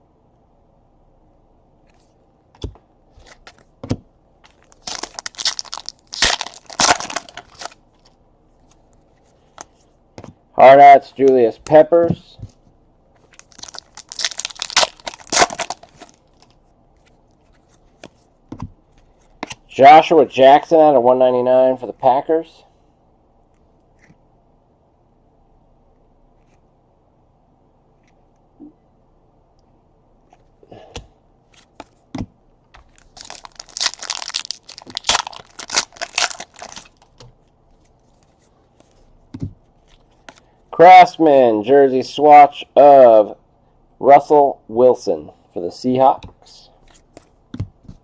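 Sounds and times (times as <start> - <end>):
wrapper crinkling and tearing: 4.5 - 8.1, 13.2 - 16.5, 32.8 - 37.2.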